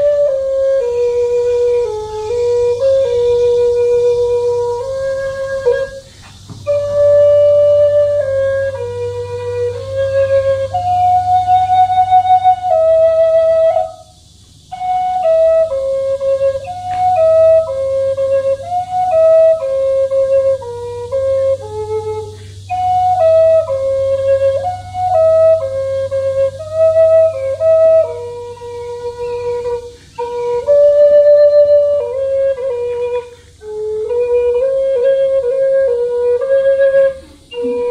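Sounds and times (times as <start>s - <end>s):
low steady hum: 0.0s - 37.9s
solo flute melody: 0.0s - 37.9s.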